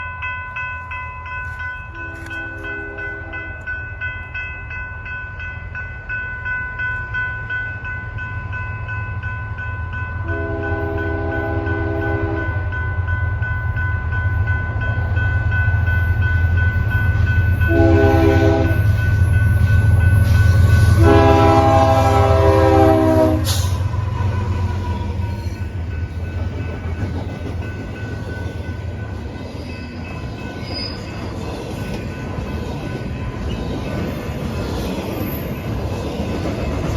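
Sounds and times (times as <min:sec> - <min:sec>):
crossing bells ringing: 0:00.0 - 0:36.9
locomotive horn blasts: 0:02.0 - 0:03.6, 0:10.2 - 0:12.6, 0:17.7 - 0:18.9, 0:20.8 - 0:23.8
locomotive engines rumbling: 0:14.0 - 0:36.9.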